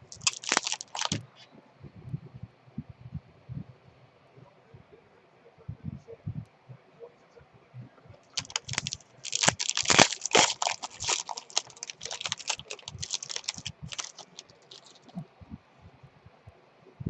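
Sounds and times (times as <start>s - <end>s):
wrappers crinkling and tearing: 0.0s - 1.2s, 8.4s - 15.2s.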